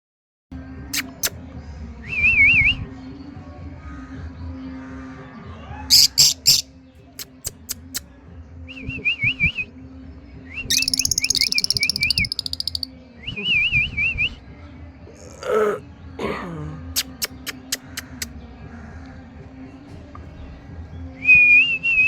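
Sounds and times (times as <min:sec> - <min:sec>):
lovebirds chirping and chattering: 0:05.9 - 0:08.0, 0:10.7 - 0:12.9, 0:16.9 - 0:21.1.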